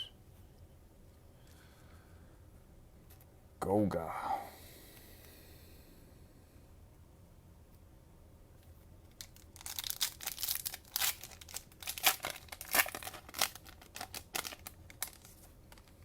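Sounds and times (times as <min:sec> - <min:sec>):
cellophane wrapper crinkling: 0:09.1 - 0:16.0.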